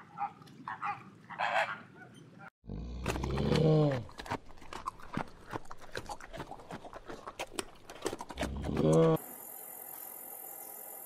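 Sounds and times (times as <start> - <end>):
panda chewing bamboo: 3.0 - 9.2.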